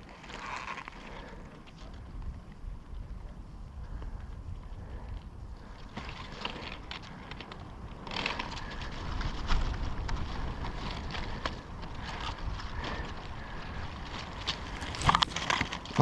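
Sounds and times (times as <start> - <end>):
wind rumbling on microphone: 0.9 - 16.0
rustling and clicking: 14.1 - 16.0.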